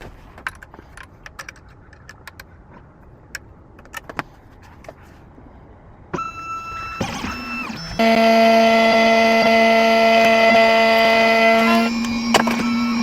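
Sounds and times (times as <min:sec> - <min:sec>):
electronic beep tone: 0:06.2 - 0:13.0.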